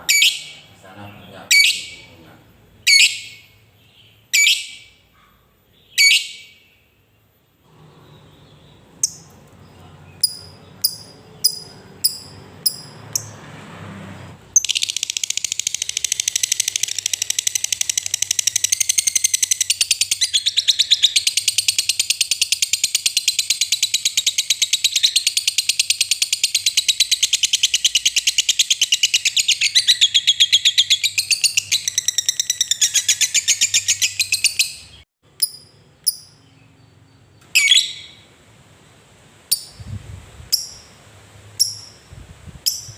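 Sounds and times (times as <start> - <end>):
bird chattering trill: 0.0 - 2.2, 2.8 - 3.5, 4.3 - 5.0, 5.8 - 6.6, 10.2 - 13.3, 14.6 - 36.5, 37.6 - 38.2, 41.6 - 42.1
bird chirps: 0.0 - 7.3, 8.0 - 13.4, 14.5 - 38.4, 41.6 - 42.1, 42.7 - 42.9.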